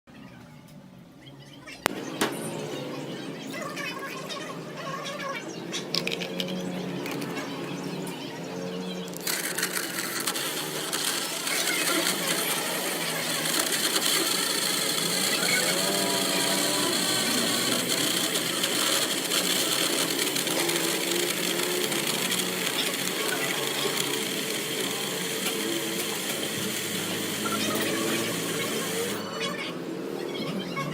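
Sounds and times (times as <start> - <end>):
blender motor whirring: 9.0 - 29.3.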